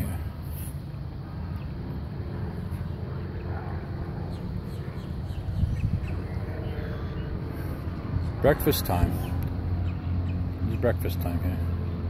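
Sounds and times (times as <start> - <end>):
steady low rumble: 0.0 - 12.0
birds chirping and calling: 2.7 - 12.0.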